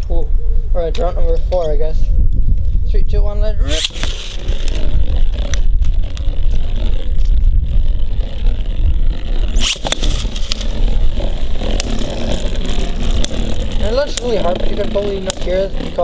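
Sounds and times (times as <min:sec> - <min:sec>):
wind rumble on microphone: 0:00.0 - 0:16.0
spinning tops scraping: 0:03.6 - 0:16.0.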